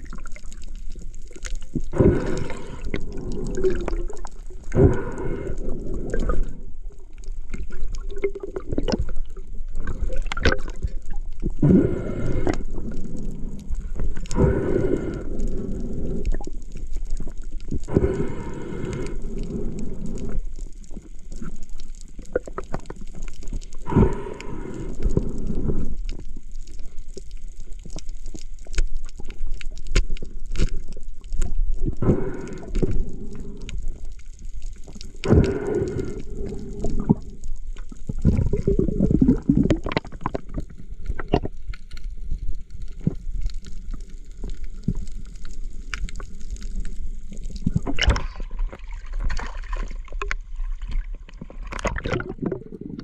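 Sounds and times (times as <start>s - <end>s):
steady underwater rumble: 0.0s - 53.0s
water gurgling and sloshing: 0.0s - 53.0s
bubbling surge: 1.8s - 7.0s, 7.6s - 13.6s, 38.1s - 41.6s, 51.0s - 53.0s.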